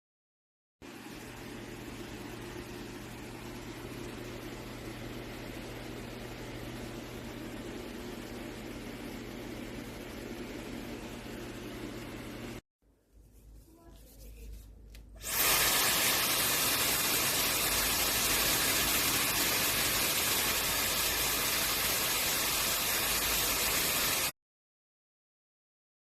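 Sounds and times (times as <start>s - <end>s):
hair dryer blowing: 15.2s - 24.3s.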